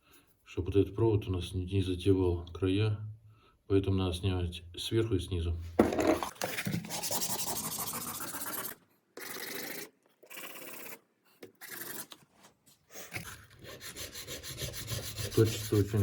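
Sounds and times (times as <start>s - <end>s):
brush rubbed on sandpaper: 6.9s - 8.8s, 13.2s - 16.0s.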